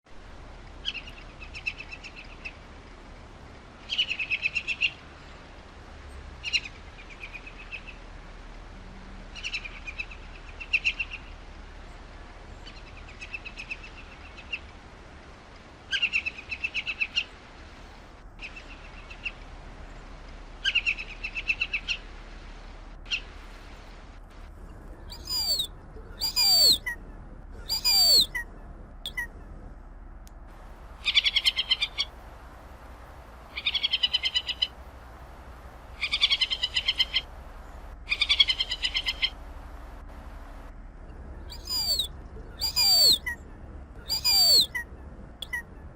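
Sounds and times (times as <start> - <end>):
bird chattering calls: 25.1 - 27.0, 27.6 - 28.4, 41.5 - 43.4, 44.0 - 44.8, 45.4 - 45.6.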